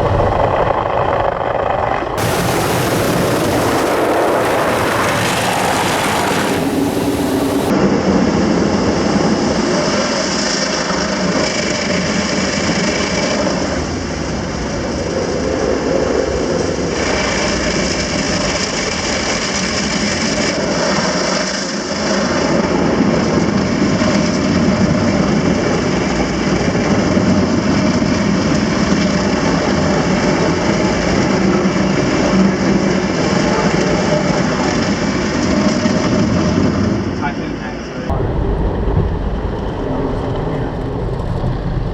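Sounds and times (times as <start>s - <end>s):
car wash spraying water: 2.2s - 7.7s.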